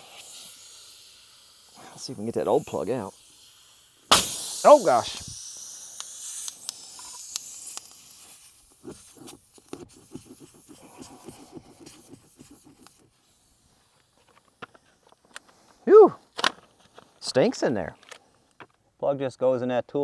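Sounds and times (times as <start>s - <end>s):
air hissing out of a tire: 0.0s - 16.1s
quick scratching strokes: 6.1s - 15.7s.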